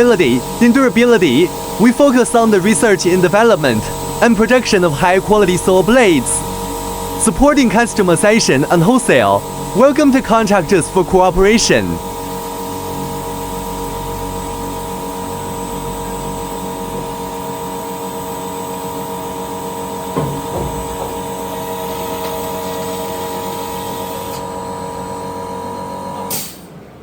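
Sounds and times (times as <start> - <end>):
circular saw cutting steel bar: 0.0 - 11.8.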